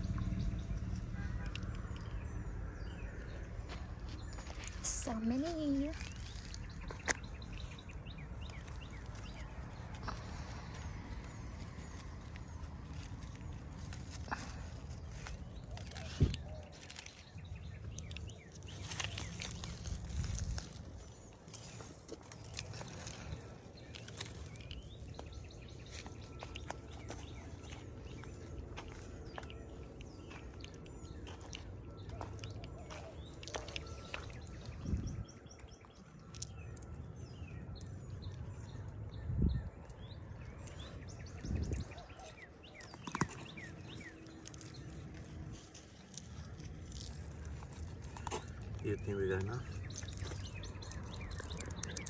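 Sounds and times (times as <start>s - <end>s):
low rumble: 0.0s - 32.6s
outdoor background noise: 0.0s - 52.0s
small birds chirping: 0.0s - 52.0s.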